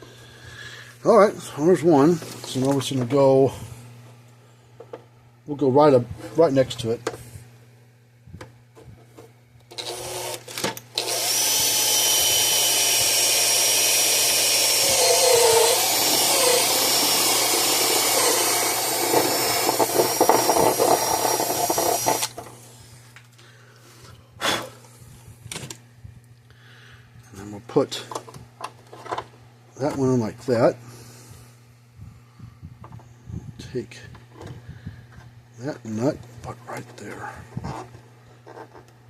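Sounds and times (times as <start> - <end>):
power drill boring: 9.7 - 22.4.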